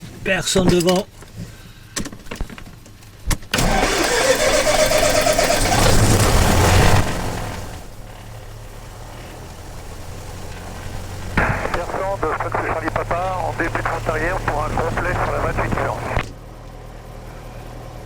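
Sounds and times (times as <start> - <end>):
low steady hum: 7.4 - 17.6.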